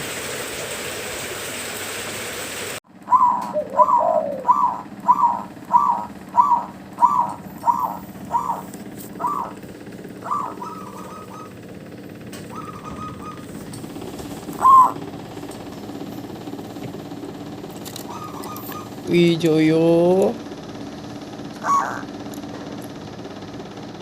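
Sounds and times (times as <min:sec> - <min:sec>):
dove cooing: 0:02.9 - 0:15.4, 0:17.9 - 0:19.0, 0:21.6 - 0:22.8.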